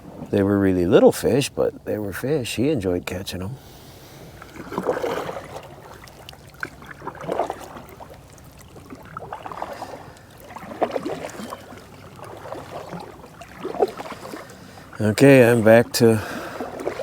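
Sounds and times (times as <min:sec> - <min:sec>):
paddle splashing water: 0:00.0 - 0:17.0.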